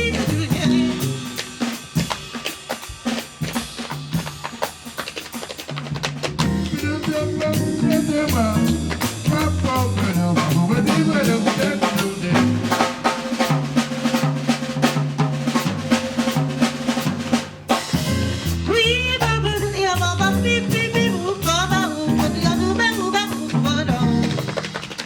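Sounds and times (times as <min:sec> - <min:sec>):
bass line and melody: 0:00.0 - 0:01.5, 0:06.2 - 0:24.7
drum kit playing: 0:00.0 - 0:25.0.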